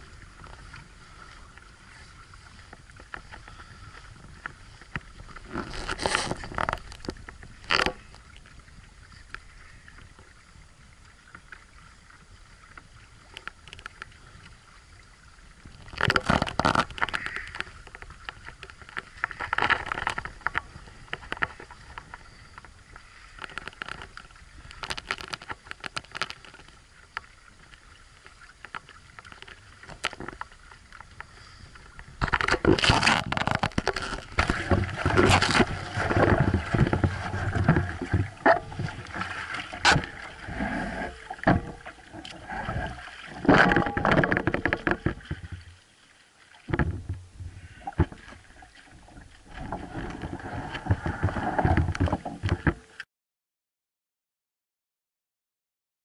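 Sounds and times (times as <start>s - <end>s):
rush of wind and water: 0.0s - 53.0s
water slapping against hulls: 32.2s - 45.8s, 46.4s - 53.0s.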